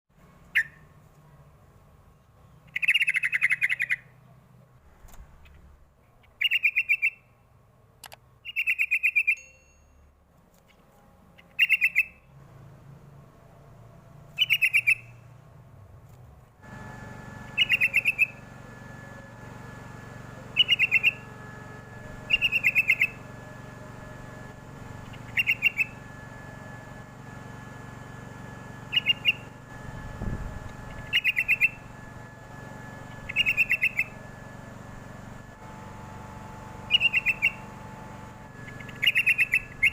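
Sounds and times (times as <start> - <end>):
steady low hum: 0.1 - 8.5, 9.5 - 39.9
bird singing chattering phrases: 2.6 - 4.2, 6.2 - 7.3, 8.4 - 9.4, 11.4 - 12.2, 14.4 - 15.2, 17.6 - 18.4, 20.6 - 21.2, 22.3 - 23.2, 25.0 - 26.0, 28.9 - 29.5, 30.9 - 31.9, 33.1 - 34.2, 36.9 - 37.6, 38.6 - 39.9.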